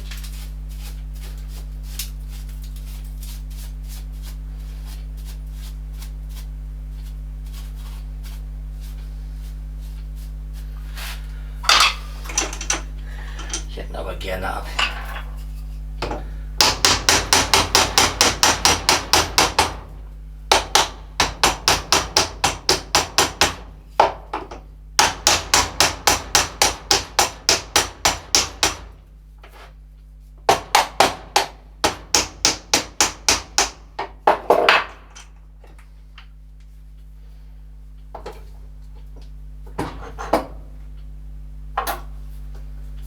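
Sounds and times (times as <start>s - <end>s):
hammer striking rapidly: 16.6s - 19.8s.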